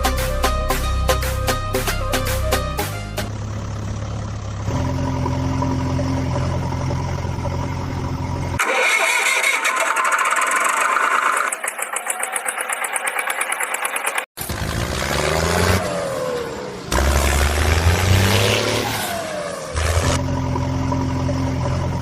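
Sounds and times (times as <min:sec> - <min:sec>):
rattling engine with rapid ticking: 0:03.3 - 0:15.9, 0:19.7 - 0:22.0
engine starting and humming: 0:03.3 - 0:22.0.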